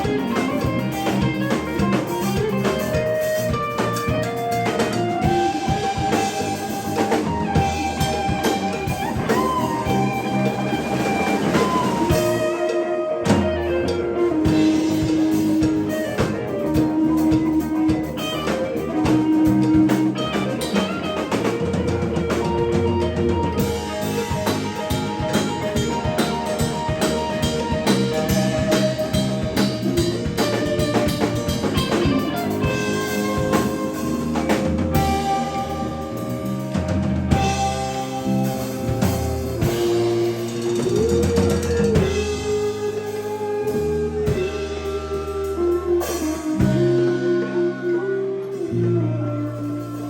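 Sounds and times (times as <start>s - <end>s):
bass guitar: 0.0s - 50.0s
drum kit beat: 0.0s - 50.0s
electric guitar: 0.0s - 50.0s.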